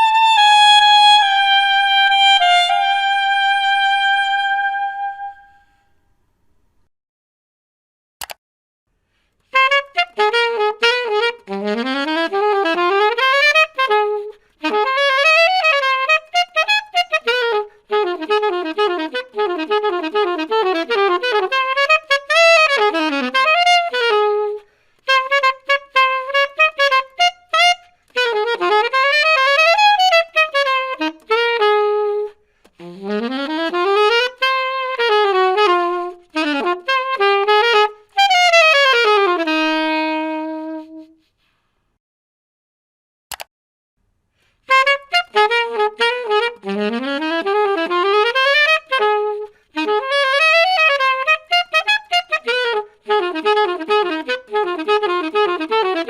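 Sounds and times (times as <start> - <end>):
alto saxophone melody: 0.0 - 5.8, 9.4 - 41.4, 44.5 - 56.0
player breaths: 24.6 - 25.0.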